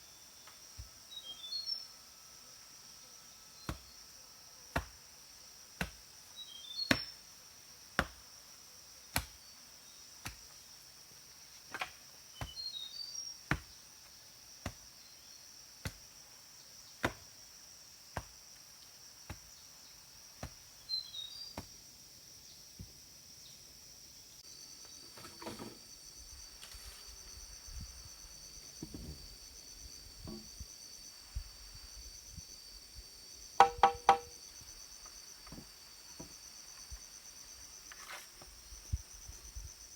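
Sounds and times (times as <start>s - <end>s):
insects chirring: 0.0s - 39.9s
knocks with a ringing tone: 33.6s - 34.4s
sharp knocks: 33.6s - 34.4s.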